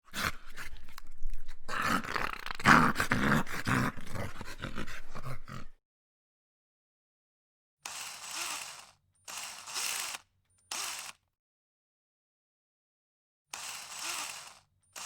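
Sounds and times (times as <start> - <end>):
dog-like animal growling: 0.0 - 5.8.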